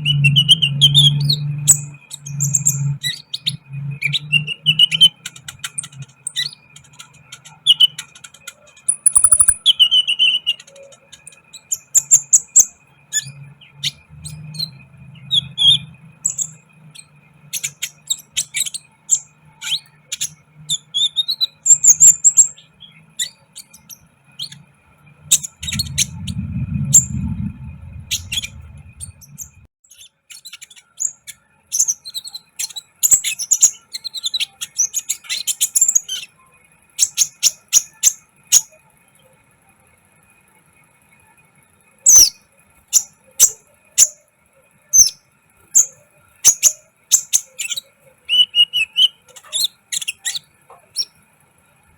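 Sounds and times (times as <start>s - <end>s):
bird high chirps and twitters: 0.0s - 38.8s, 42.0s - 44.2s, 44.8s - 51.2s
low rumble: 25.0s - 29.7s.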